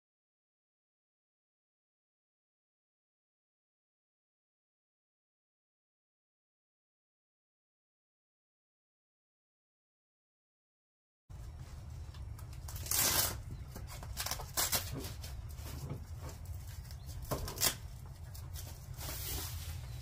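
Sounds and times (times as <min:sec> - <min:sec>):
rustling and handling noises: 0:11.3 - 0:20.0
steady low hum: 0:11.3 - 0:20.0.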